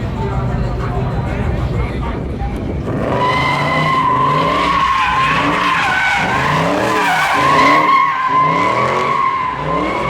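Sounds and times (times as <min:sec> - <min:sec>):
car engine revving: 0:00.0 - 0:10.0
car tyres squealing: 0:02.6 - 0:10.0.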